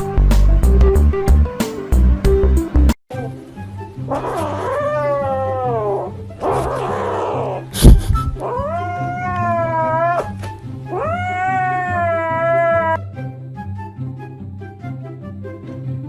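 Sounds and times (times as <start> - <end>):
background music: 0.0 - 16.0
cat meowing: 4.1 - 7.7, 8.4 - 13.0.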